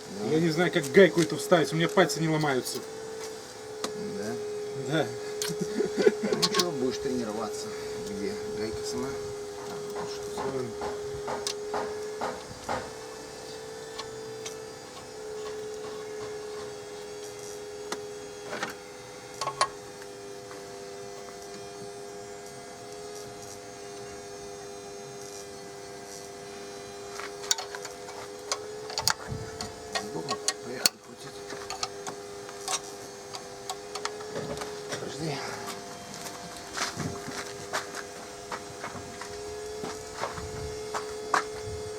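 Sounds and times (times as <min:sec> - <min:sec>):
steady hum: 0:00.0 - 0:41.9
hand tools clicking on metal: 0:06.3 - 0:06.7, 0:27.4 - 0:34.1.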